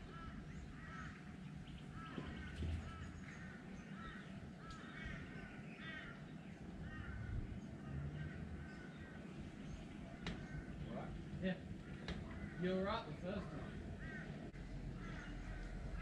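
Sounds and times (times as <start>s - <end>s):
birds squawking: 0.0s - 16.0s
low outdoor rumble: 0.0s - 16.0s.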